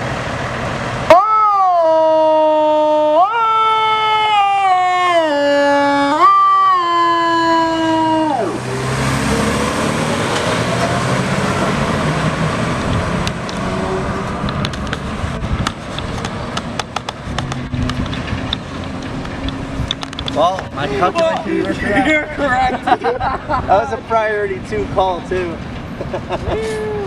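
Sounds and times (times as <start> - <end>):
truck engine and road noise: 0.0 - 27.0
electronic siren winding down: 1.1 - 12.2.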